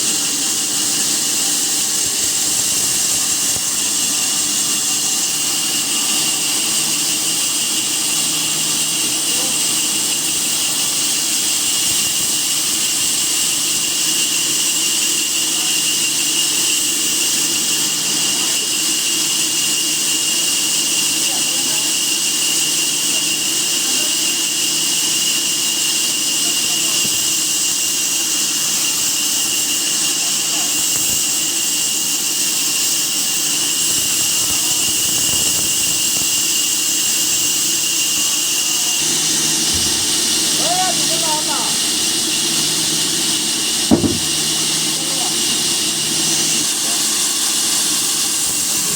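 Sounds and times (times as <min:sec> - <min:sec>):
machine hissing with high whine: 0:00.0 - 0:48.9.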